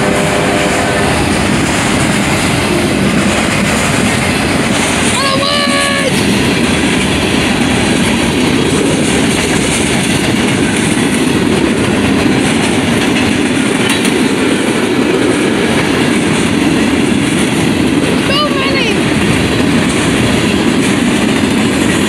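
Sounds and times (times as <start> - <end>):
freight train wheels rumbling on rails: 0.0 - 22.0.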